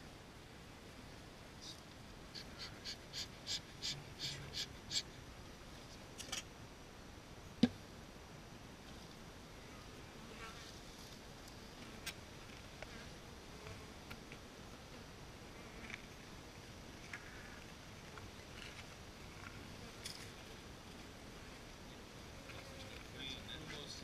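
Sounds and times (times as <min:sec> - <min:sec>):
bird calling harshly: 0:02.3 - 0:05.1.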